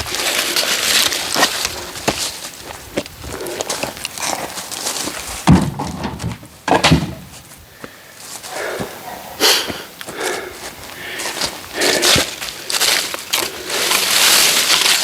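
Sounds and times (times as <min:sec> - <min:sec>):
firewood knocking and scraping: 0:00.0 - 0:15.0
heavy thumps: 0:05.4 - 0:10.7.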